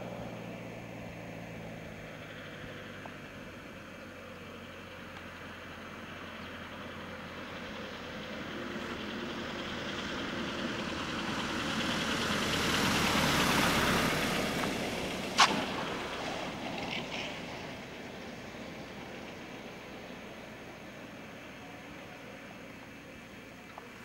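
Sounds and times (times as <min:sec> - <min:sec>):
sharp click: 0:15.4 - 0:15.8.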